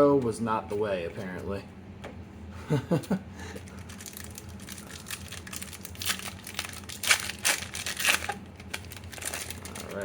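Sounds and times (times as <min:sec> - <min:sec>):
foil wrapper crinkling: 0:03.6 - 0:10.0.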